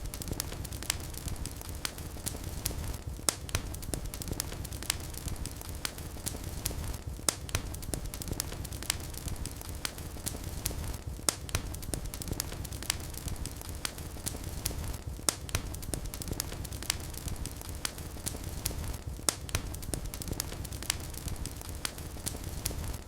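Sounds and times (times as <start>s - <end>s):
wood fire burning: 0.0s - 23.0s.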